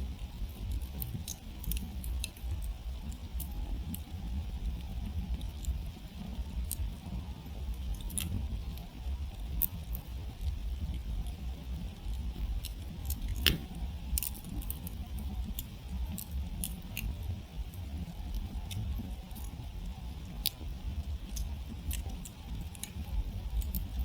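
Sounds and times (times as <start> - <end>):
campfire crackling and popping: 0.0 - 24.0
low steady rumble: 0.0 - 24.0.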